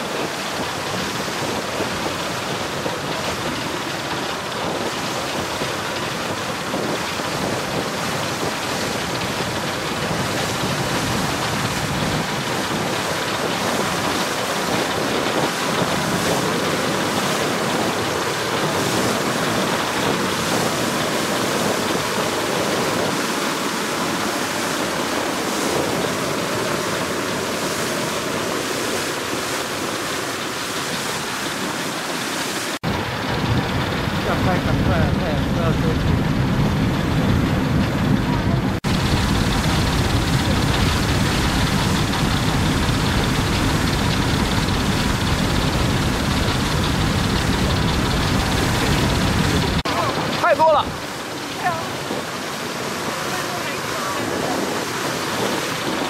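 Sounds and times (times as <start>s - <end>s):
wind on microphone: 0.0s - 32.2s, 32.8s - 56.0s
water rushing past boat: 0.0s - 56.0s
wind rushing: 32.8s - 56.0s.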